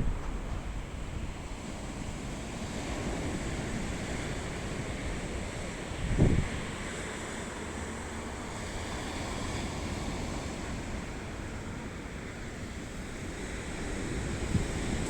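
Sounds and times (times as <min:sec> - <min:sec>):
wind rumbling on microphone: 0:00.0 - 0:06.9, 0:13.1 - 0:15.0
sea waves on beach: 0:06.6 - 0:15.0.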